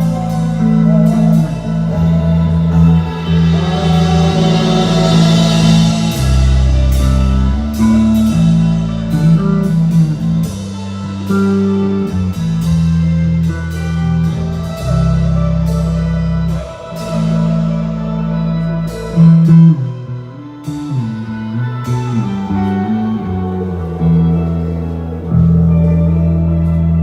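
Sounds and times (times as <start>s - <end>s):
bass: 0.0s - 27.0s
distorted electric guitar chords: 0.0s - 27.0s
cymbal crashes: 2.4s - 9.4s
drum kit hits: 2.8s - 8.9s.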